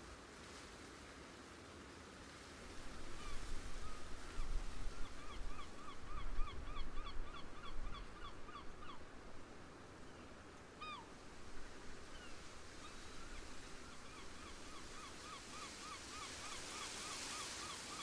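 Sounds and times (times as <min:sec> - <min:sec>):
wind rumbling on microphone: 0:02.8 - 0:09.5.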